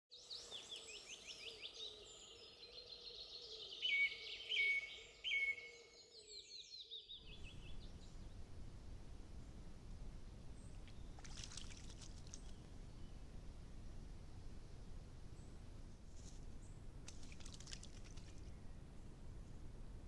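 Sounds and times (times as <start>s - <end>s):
small birds singing: 0.1s - 8.5s, 10.4s - 13.4s
steady low hiss: 7.1s - 20.0s.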